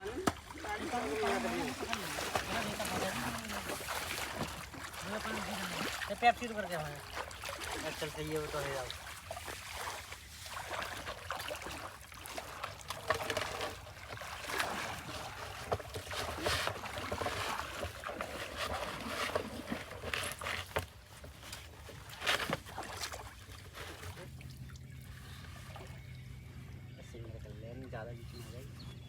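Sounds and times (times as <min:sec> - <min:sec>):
water splashing: 0:00.0 - 0:26.1.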